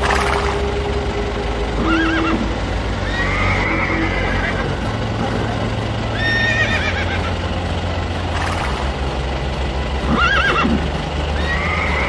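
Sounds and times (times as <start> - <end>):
low steady hum: 0.0 - 12.0
horse whinnying: 1.8 - 4.8, 6.1 - 7.3, 10.1 - 10.8.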